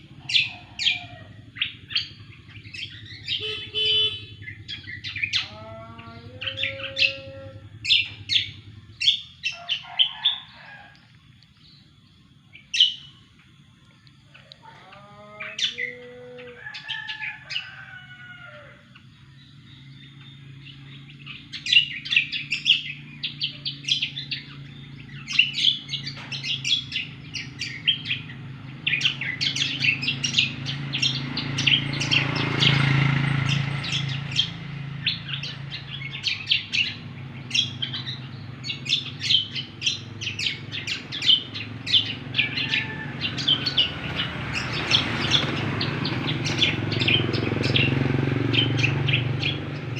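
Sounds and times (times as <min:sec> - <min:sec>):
songbird chirps and trills: 0:00.0 - 0:49.9.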